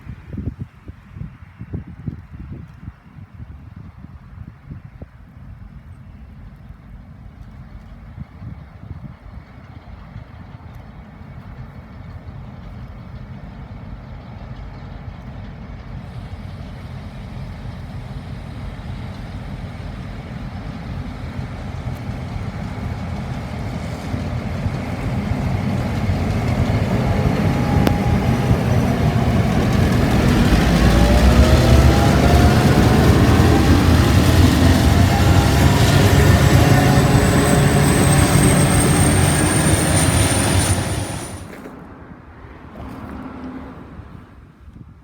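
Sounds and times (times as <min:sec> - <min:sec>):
locomotive engine drone: 0:06.3 - 0:41.7
rising whines: 0:25.1 - 0:41.6.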